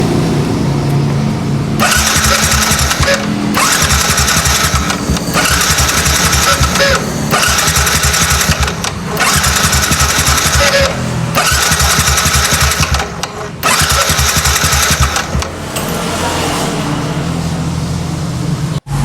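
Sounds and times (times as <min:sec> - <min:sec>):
motorcycle starter cranking: 0:01.8 - 0:16.0.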